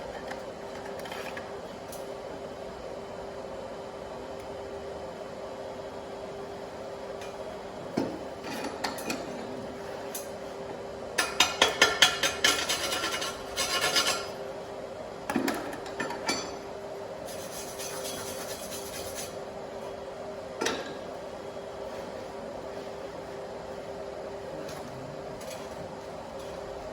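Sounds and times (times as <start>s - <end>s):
scraping and rubbing on metal: 12.3s - 14.4s, 17.2s - 19.4s.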